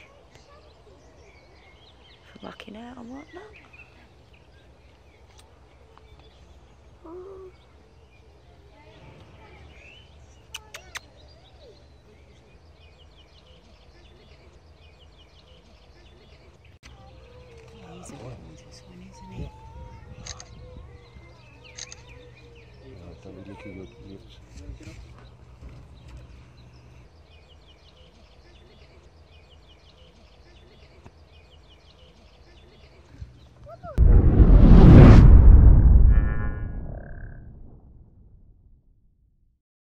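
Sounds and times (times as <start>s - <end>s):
small birds chirping: 0.0s - 34.0s
low outdoor rumble: 33.2s - 38.7s.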